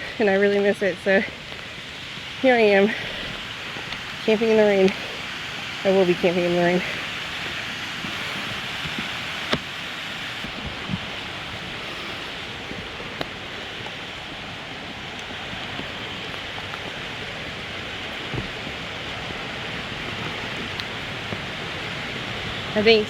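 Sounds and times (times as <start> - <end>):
falling rain hiss: 0.0 - 23.0.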